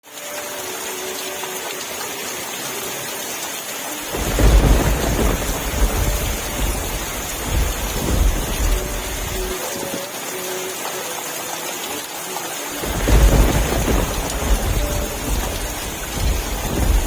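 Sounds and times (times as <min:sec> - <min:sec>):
rain hissing: 0:00.0 - 0:17.0
thunder rumble: 0:04.1 - 0:09.6, 0:12.8 - 0:17.0.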